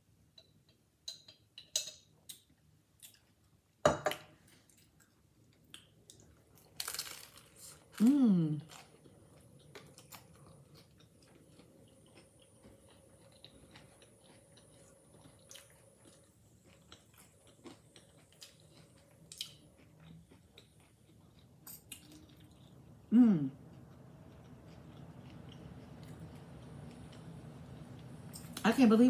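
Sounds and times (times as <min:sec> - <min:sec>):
person humming: 0:08.0 - 0:08.6, 0:23.1 - 0:23.6
crunchy chewing: 0:08.6 - 0:22.9, 0:23.7 - 0:28.1.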